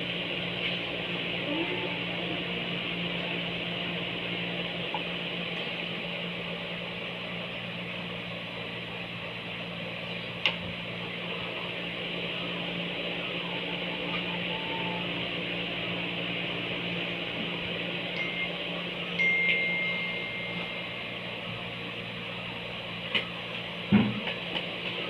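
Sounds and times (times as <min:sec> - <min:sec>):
mechanical motor hum: 0:00.0 - 0:25.0.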